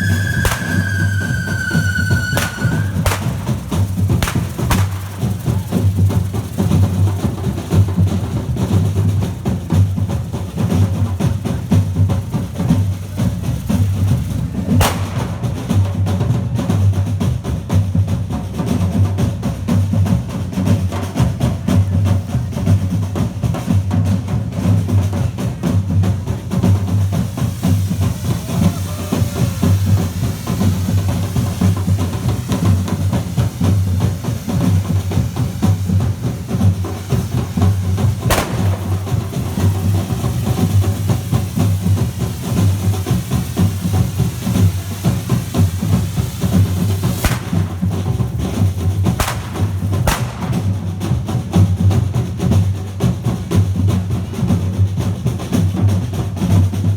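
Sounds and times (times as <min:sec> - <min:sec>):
drum-led percussion music: 0:00.0 - 0:56.9
sharp knock: 0:02.3 - 0:05.4.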